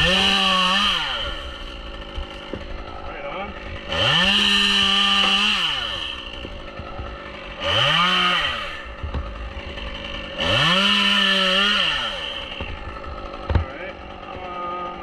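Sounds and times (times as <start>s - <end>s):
chainsaw revving: 0.0s - 15.0s.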